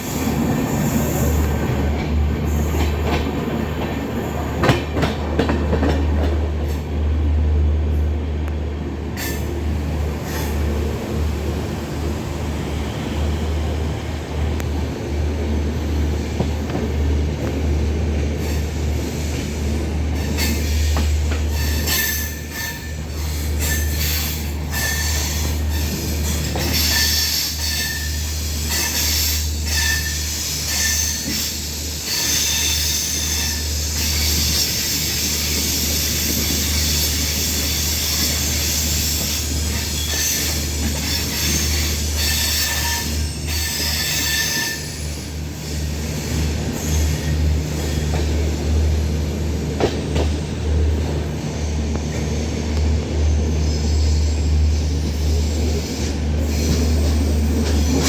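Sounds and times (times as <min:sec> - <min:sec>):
train rumble: 0:00.0 - 0:58.0
wheel and rail hiss: 0:00.0 - 0:58.0
high wheel squeals: 0:21.5 - 0:45.2.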